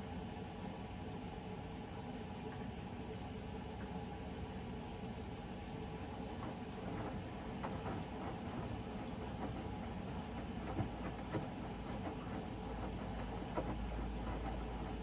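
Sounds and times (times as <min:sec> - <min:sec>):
low motor hum: 0:06.2 - 0:15.0
washing machine drum tumbling: 0:06.2 - 0:15.0.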